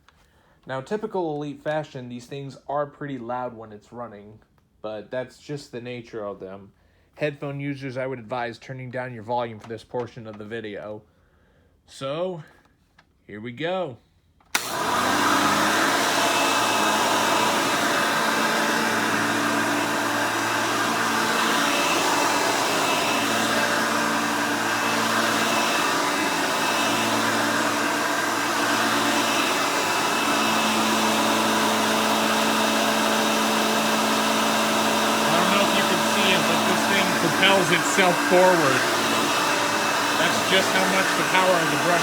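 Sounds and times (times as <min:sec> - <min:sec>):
upright vacuum cleaner running: 0:14.6 - 0:42.0.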